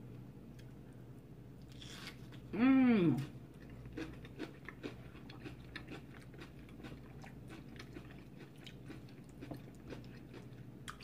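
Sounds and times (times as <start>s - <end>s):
chewing with wet mouth sounds: 3.2s - 11.0s.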